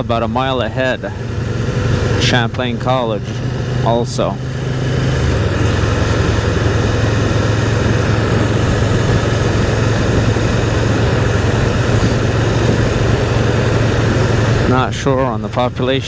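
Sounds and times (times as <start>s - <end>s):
motorcycle engine running: 0.0s - 16.0s
wind noise: 4.6s - 16.0s.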